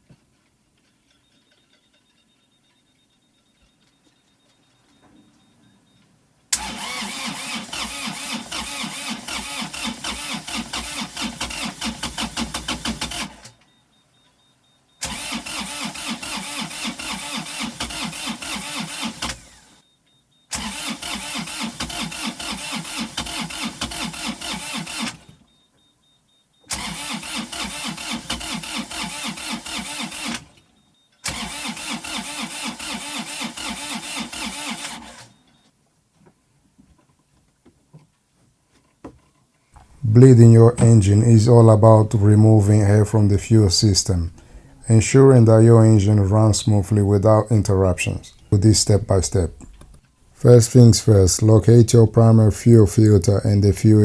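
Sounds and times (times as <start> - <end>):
diesel engine cranking: 6.5 - 13.6, 15.0 - 19.8, 20.5 - 25.4, 26.7 - 35.3, 39.8 - 54.0.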